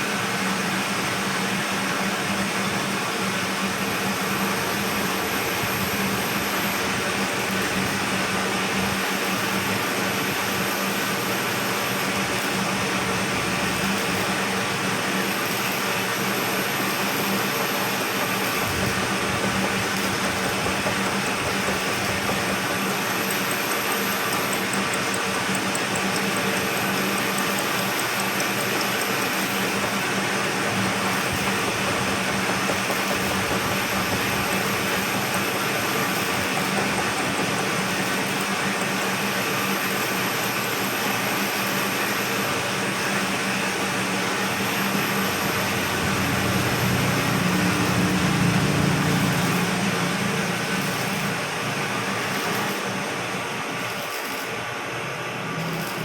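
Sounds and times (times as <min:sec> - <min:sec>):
milling machine motor hum: 0:02.9 - 0:56.0
milling cutter hiss: 0:11.0 - 0:40.6.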